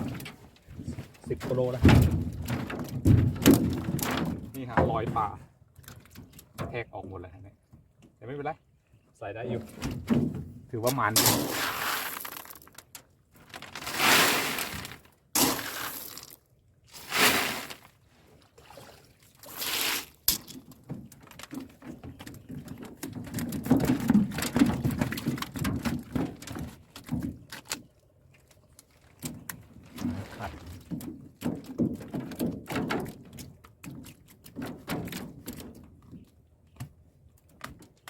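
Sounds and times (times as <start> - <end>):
irregular knocks and thuds: 0.0 - 6.8, 9.7 - 11.4, 20.6 - 27.5, 29.2 - 37.0
water splashing and pouring: 10.9 - 12.8, 13.4 - 20.5, 28.3 - 31.0.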